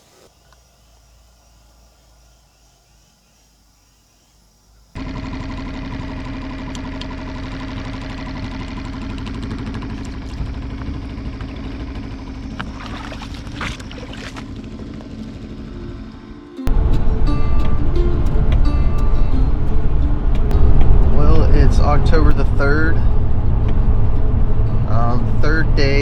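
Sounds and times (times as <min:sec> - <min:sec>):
small boat motor running: 0:05.0 - 0:26.0
water under hull: 0:06.6 - 0:16.0.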